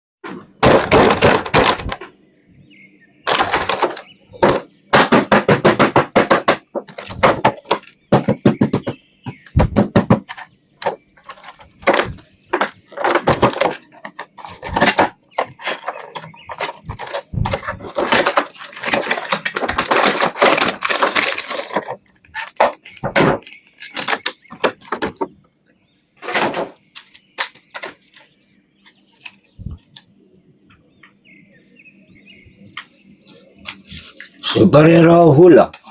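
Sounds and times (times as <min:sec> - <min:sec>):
plastic clicks and knocks: 0:03.3 - 0:25.5, 0:26.2 - 0:30.1
packaging crinkling: 0:12.9 - 0:24.4.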